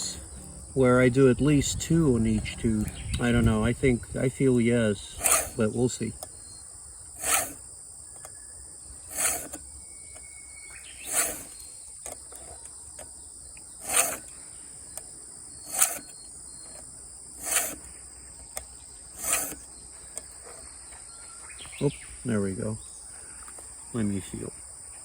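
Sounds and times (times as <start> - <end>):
insects trilling: 0.0 - 25.0
hand file rasping on chain: 5.2 - 5.6, 7.2 - 7.6, 9.0 - 9.6, 11.0 - 11.6, 13.7 - 14.3, 15.6 - 16.1, 17.4 - 17.9, 19.1 - 19.6.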